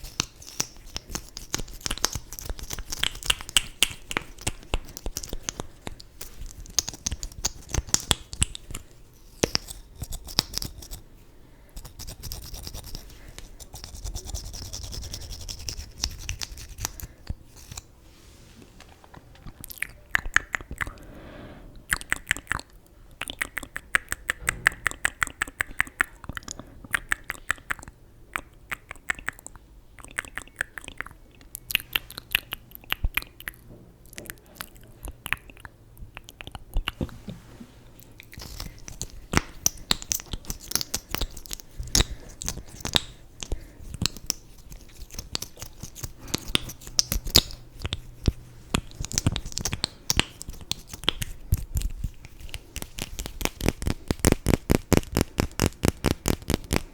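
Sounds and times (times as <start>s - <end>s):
small crackly clicks and taps: 0.0s - 8.8s.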